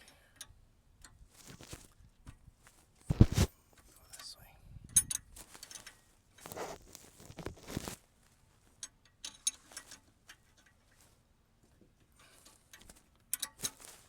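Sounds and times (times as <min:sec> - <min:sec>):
small metal clicks from wrench: 0:00.0 - 0:02.4, 0:04.9 - 0:06.5, 0:08.8 - 0:11.0, 0:12.0 - 0:14.0.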